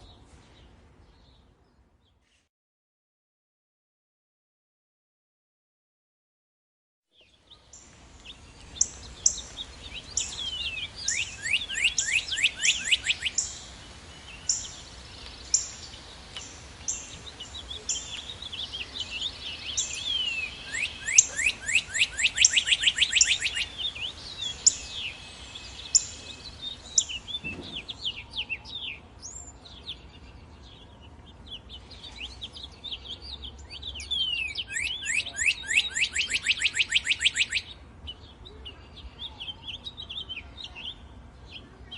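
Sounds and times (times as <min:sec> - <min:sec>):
bird whistled song with trill: 0:08.8 - 0:13.7, 0:17.8 - 0:29.5, 0:33.2 - 0:37.8.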